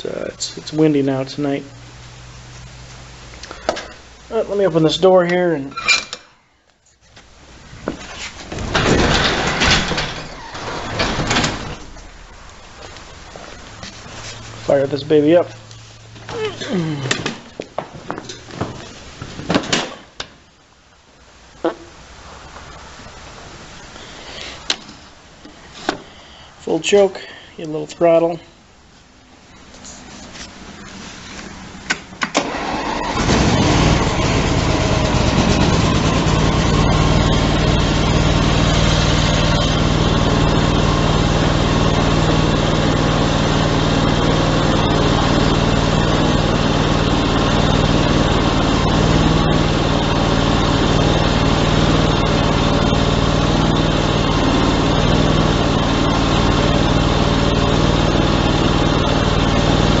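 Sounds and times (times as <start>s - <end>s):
garden tractor engine starting: 8.5s - 12.2s, 32.3s - 60.0s.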